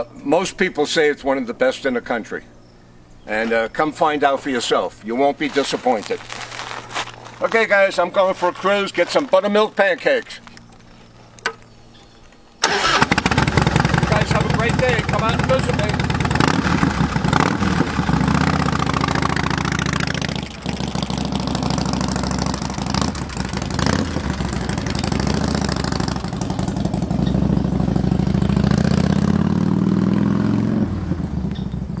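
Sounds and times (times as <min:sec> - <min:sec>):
motorcycle engine running: 0:12.7 - 0:32.0.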